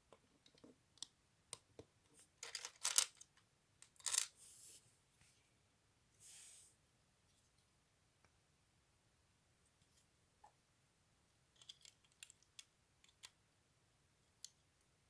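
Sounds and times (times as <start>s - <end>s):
plastic pieces clattering: 2.4s - 3.2s, 3.9s - 4.3s.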